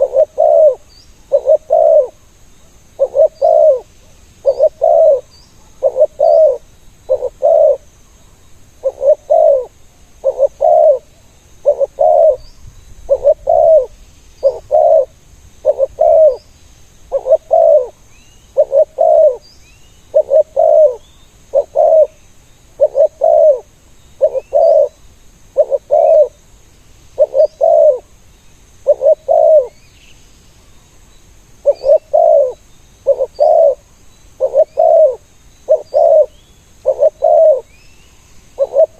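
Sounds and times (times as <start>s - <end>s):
dove cooing: 0.0s - 2.2s, 3.0s - 7.8s, 8.8s - 16.4s, 17.1s - 18.0s, 18.6s - 19.4s, 20.1s - 22.2s, 22.8s - 25.0s, 25.6s - 26.4s, 27.2s - 28.1s, 28.8s - 29.8s, 31.6s - 37.8s, 38.6s - 38.9s
small birds chirping: 0.0s - 38.9s.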